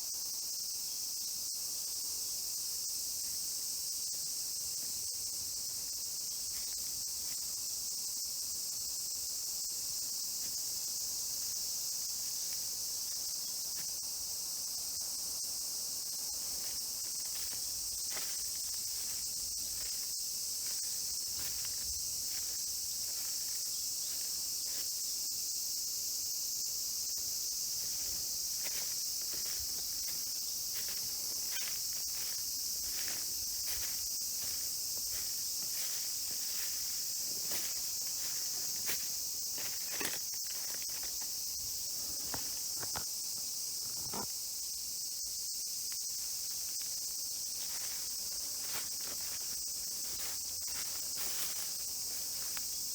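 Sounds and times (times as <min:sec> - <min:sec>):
high-pitched insect chorus: 0:00.0 - 0:52.9.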